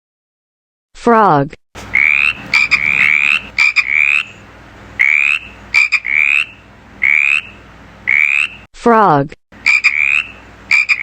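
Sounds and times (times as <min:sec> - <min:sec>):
frog croaking: 0:01.9 - 0:04.4, 0:05.0 - 0:08.7, 0:09.6 - 0:11.0.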